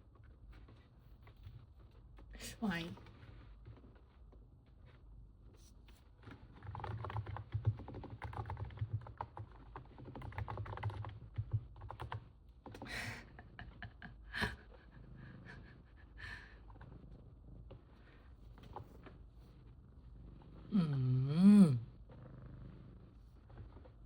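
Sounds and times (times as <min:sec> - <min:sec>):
muffled keyboard keystrokes: 0:06.2 - 0:12.9.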